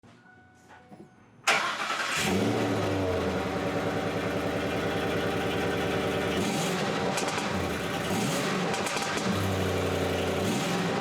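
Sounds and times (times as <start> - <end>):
pickup engine starting and idling: 1.5 - 8.0.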